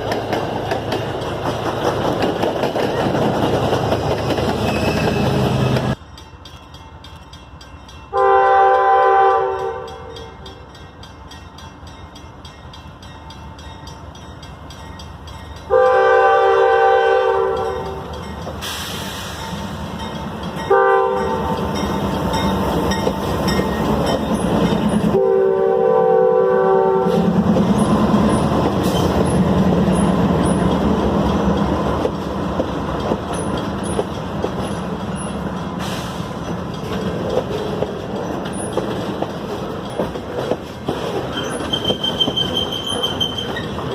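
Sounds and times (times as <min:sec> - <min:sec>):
train rumble and wheel noise: 0:00.0 - 0:43.9
locomotive air horn blasts: 0:08.1 - 0:10.4, 0:15.7 - 0:18.1, 0:20.7 - 0:21.6, 0:25.1 - 0:27.3.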